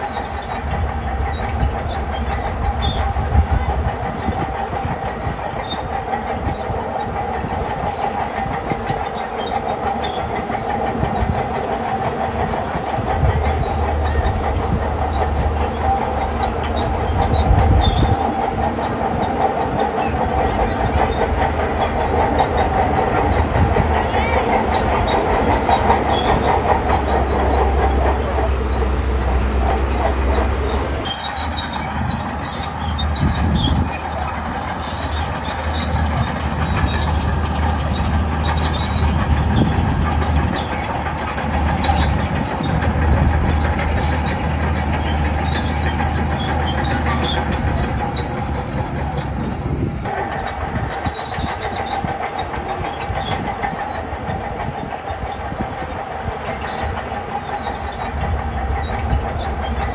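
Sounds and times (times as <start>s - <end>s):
steel tracks clattering: 0.0s - 59.9s
diesel engine running: 10.0s - 51.4s.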